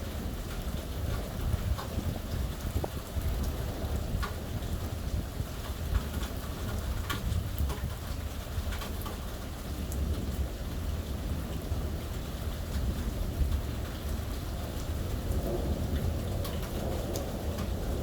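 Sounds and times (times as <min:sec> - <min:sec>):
heavy rain: 0:00.0 - 0:18.0
raindrops ticking close by: 0:00.0 - 0:18.0.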